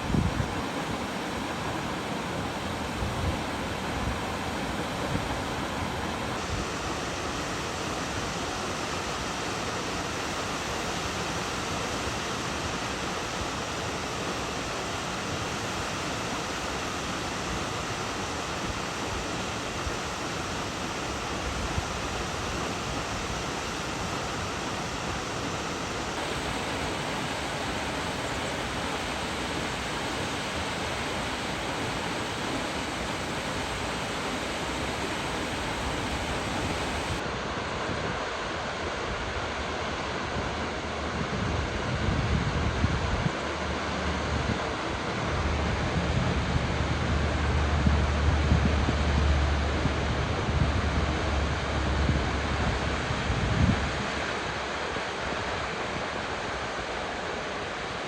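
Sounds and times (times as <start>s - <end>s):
waterfall rushing: 0.0s - 41.8s.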